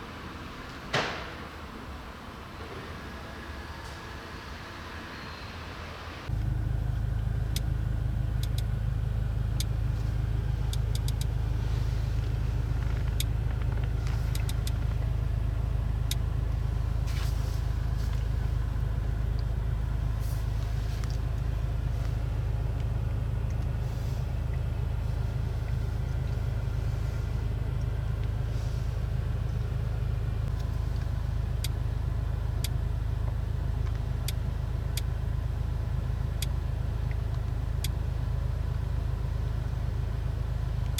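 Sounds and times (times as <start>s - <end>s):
car engine droning: 0.0s - 40.9s
faint ticks: 8.4s - 8.8s, 9.4s - 15.4s, 32.6s - 35.2s.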